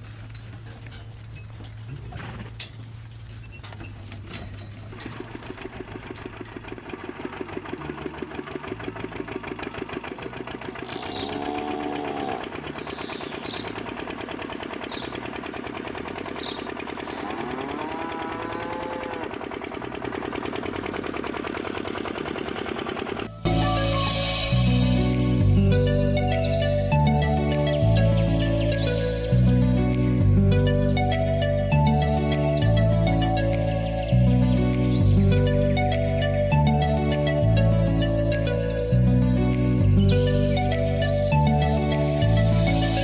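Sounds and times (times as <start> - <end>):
drawn-out animal calls: 0.0 - 24.0
small diesel engine chugging: 0.0 - 27.4, 39.8 - 43.0.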